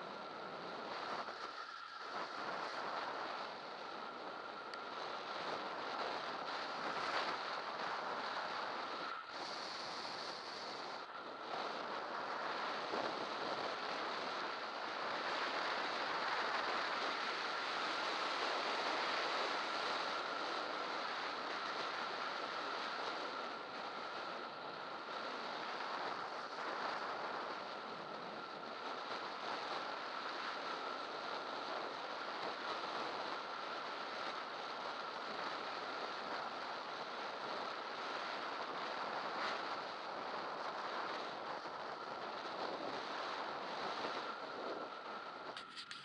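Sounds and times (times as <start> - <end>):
thin constant whine: 0.0 - 46.0
wind rushing on microphone: 0.0 - 46.0.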